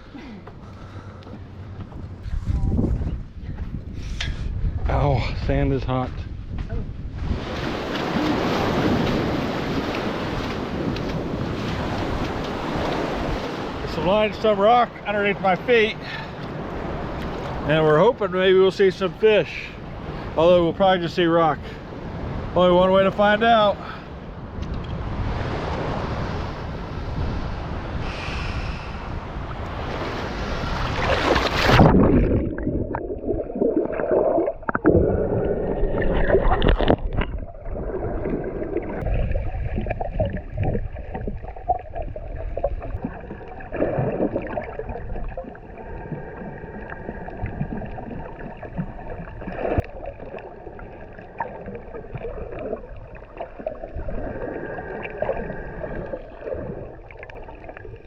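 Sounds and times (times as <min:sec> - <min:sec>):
wind noise on microphone: 0:01.6 - 0:13.8, 0:24.2 - 0:33.6, 0:34.6 - 0:43.1
underwater gurgling and sloshing: 0:06.8 - 0:58.0
surf: 0:07.1 - 0:58.0.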